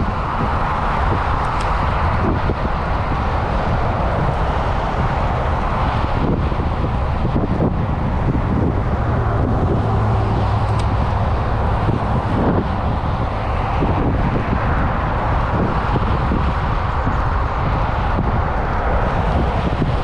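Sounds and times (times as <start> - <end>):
low engine hum: 0.0 - 20.0
road noise: 0.0 - 20.0
wind noise: 0.0 - 20.0.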